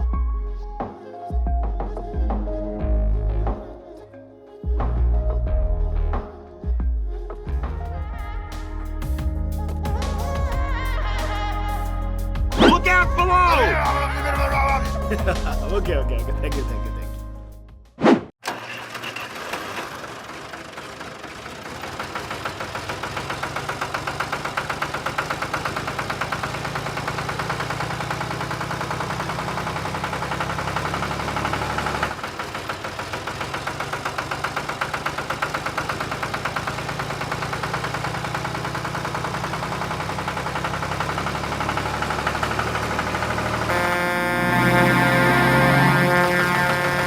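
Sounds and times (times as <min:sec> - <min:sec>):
tractor engine idling: 0:08.6 - 0:17.6, 0:18.4 - 0:47.0.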